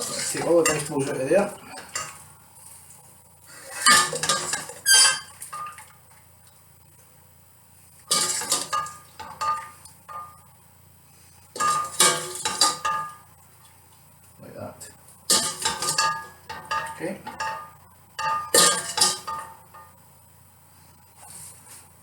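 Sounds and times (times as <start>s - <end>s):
metal utensil scraping a pot: 3.7s - 5.7s.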